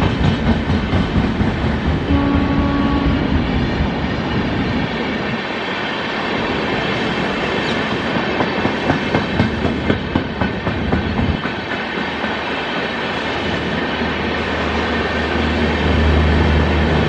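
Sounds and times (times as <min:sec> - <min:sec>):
train wheels clattering over rail joints: 0:00.0 - 0:02.1, 0:03.4 - 0:16.0
train rolling rumble: 0:00.0 - 0:17.0.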